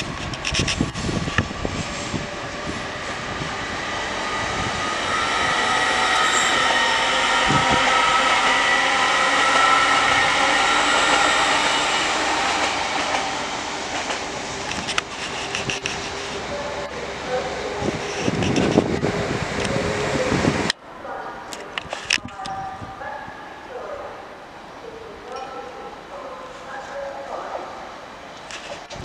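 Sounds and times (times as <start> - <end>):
train wheels rushing on rail: 0.0 - 20.8
train whine: 0.0 - 21.9
wheels clicking over rail joints: 12.4 - 17.0, 18.0 - 19.0.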